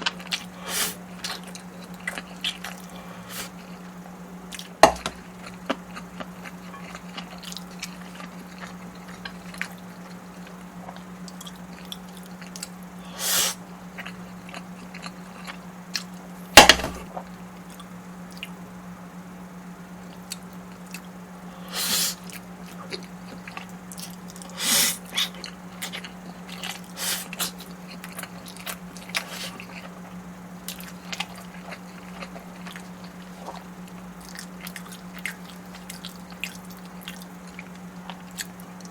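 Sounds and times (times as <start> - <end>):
wet chewing of food: 0.0 - 16.4, 17.2 - 18.6, 20.1 - 38.9
steady low hum: 0.0 - 38.9
crunching or slurping: 21.6 - 38.9.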